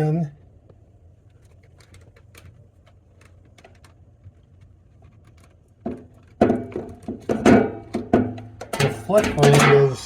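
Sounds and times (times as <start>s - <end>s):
man talking: 8.8s - 10.0s.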